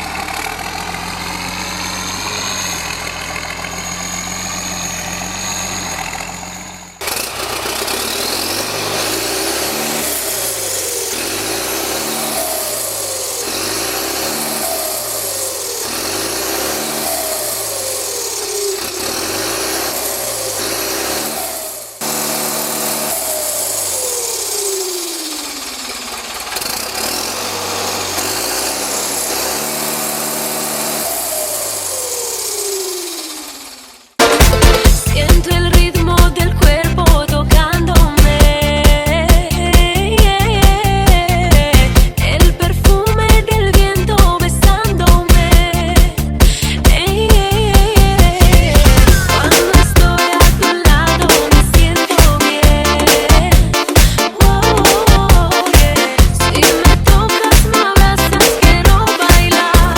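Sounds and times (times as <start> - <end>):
tractor diesel engine revving: 0.0 - 59.9
turbo whine: 48.8 - 52.8.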